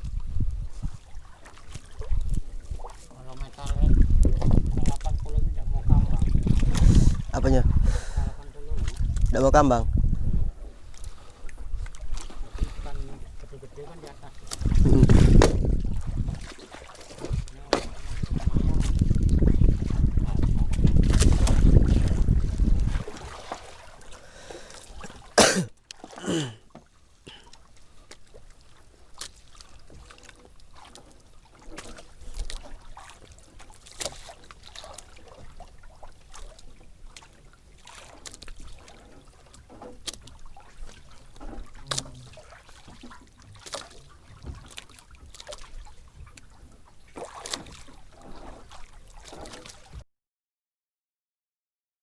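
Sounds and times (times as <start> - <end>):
water lapping against boat hull: 0.0 - 50.0
small ticks and knocks: 38.2 - 40.4.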